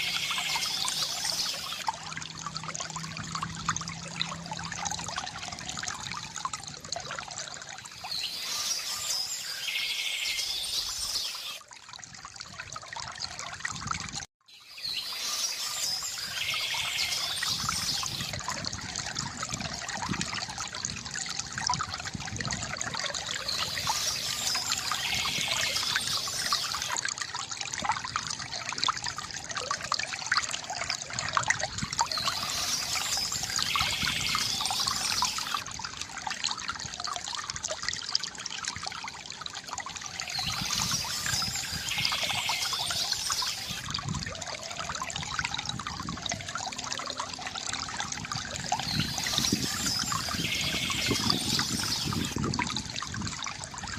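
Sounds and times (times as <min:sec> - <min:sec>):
fountain water trickling: 0:00.0 - 0:53.9
birds chirping: 0:32.1 - 0:35.6, 0:40.3 - 0:43.8, 0:48.8 - 0:52.4.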